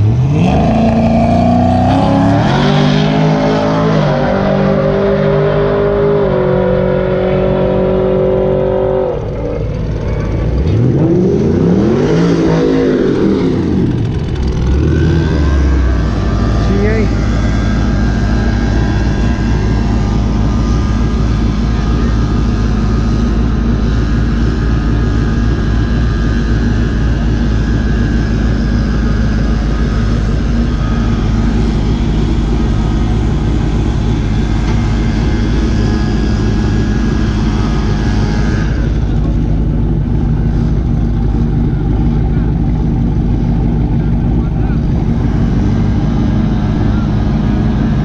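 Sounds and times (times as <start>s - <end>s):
car engine idling: 0.0s - 48.0s.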